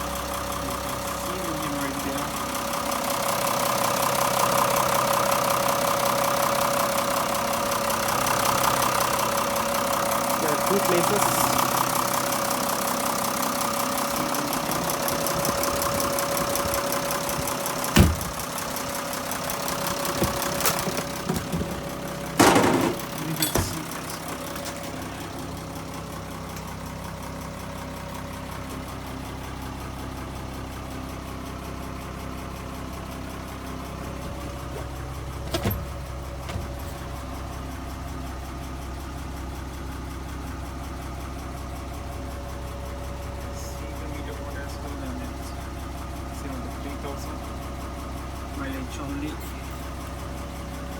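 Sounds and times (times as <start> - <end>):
vehicle engine idling: 0.0 - 50.9
sharp knocks: 18.0 - 18.5.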